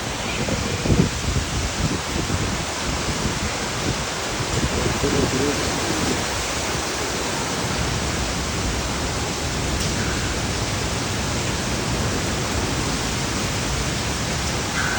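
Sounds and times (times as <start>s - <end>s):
heavy rain pouring: 0.0s - 14.9s.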